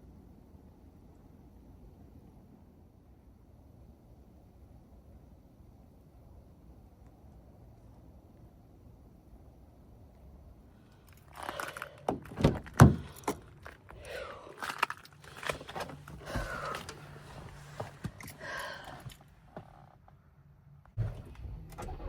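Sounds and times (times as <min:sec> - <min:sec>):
rustling of gear: 0:11.0 - 0:20.2
knocks and thuds of gear: 0:11.3 - 0:14.0, 0:14.6 - 0:19.8.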